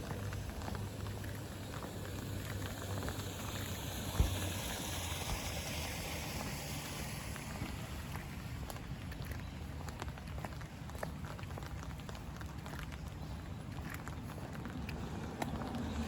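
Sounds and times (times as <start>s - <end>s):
steady rain falling: 0.0s - 9.1s
vehicle passing on wet road: 0.0s - 9.1s, 14.5s - 16.0s.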